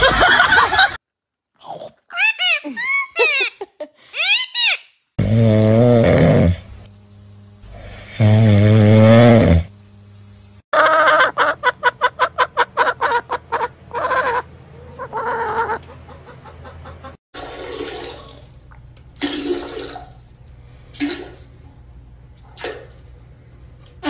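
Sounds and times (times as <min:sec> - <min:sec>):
hen clucking: 0:10.7 - 0:17.2.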